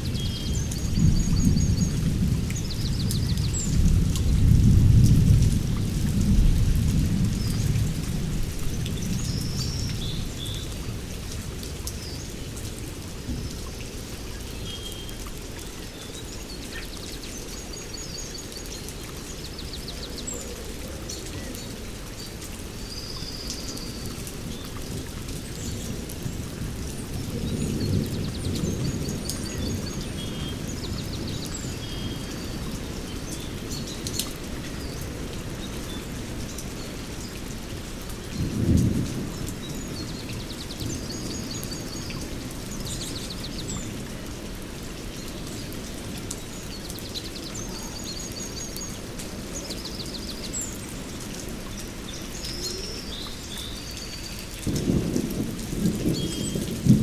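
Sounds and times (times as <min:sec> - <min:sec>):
steady rain falling: 0:00.0 - 0:57.0
thunder rumbling: 0:54.6 - 0:57.0.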